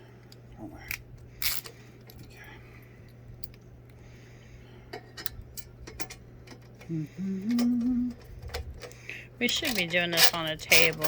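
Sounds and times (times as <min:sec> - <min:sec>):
steady low hum: 0:00.0 - 0:11.0
metal hardware clicks and taps: 0:04.9 - 0:06.9, 0:07.5 - 0:11.0.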